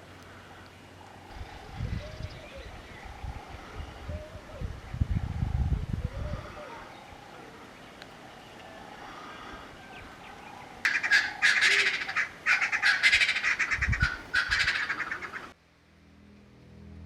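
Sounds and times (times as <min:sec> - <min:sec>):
bird rattling cackles: 0:10.9 - 0:15.5.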